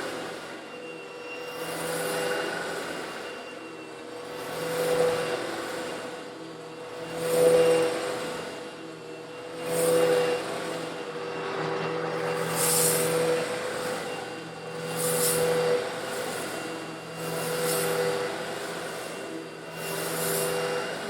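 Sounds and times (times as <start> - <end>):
vacuum cleaner motor hum: 0.0 - 21.0
gritty rush of granules: 12.3 - 14.2, 14.8 - 18.4, 19.8 - 20.7.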